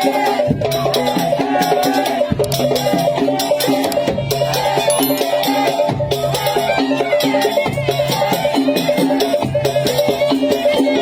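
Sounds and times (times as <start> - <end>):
rattling percussion: 2.2 - 6.6.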